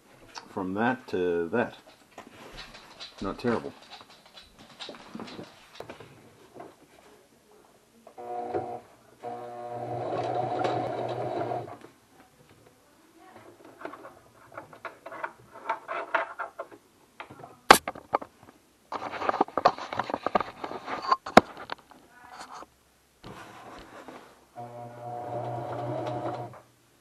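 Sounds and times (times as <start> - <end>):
clicking and handling noises: 1.8 - 6.8, 13.4 - 22.7
sewing machine stitching: 8.2 - 11.8, 24.6 - 26.6.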